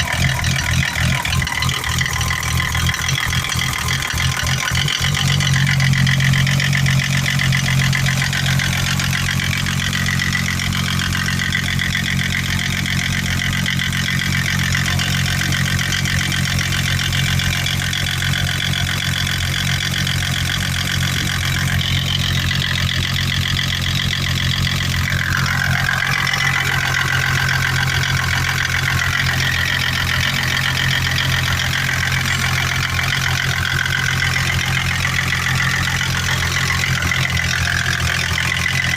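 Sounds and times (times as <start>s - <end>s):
engine running: 0.0s - 38.9s
rapid engine knock: 0.0s - 38.9s.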